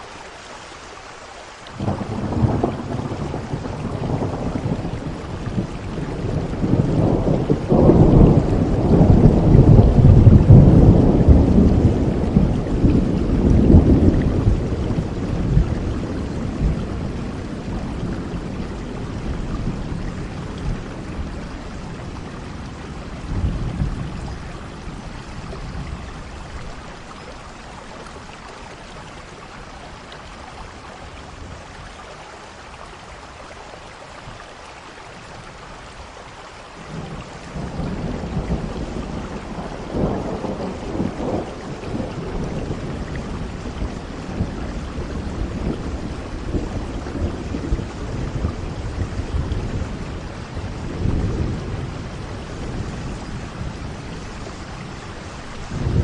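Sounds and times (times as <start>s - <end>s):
steady rain: 0.0s - 56.0s
rolling thunder: 1.8s - 27.3s, 36.9s - 56.0s.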